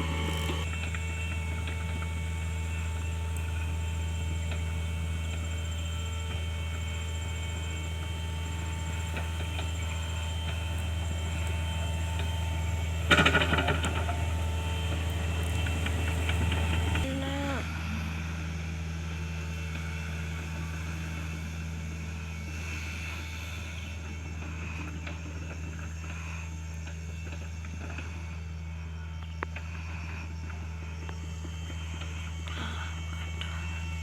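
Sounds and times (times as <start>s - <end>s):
excavator diesel engine running: 0.0s - 34.0s
loud crackling and clattering: 13.0s - 17.0s.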